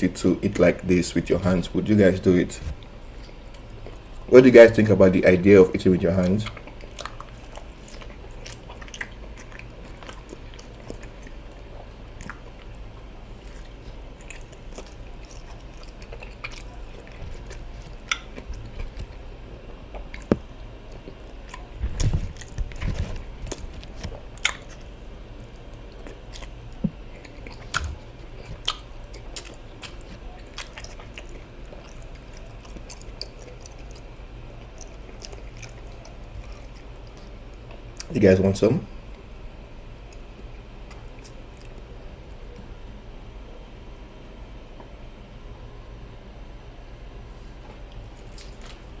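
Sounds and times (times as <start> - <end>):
chewing and biting food: 0.4 - 4.9, 5.8 - 38.1, 40.1 - 42.6, 47.7 - 49.0.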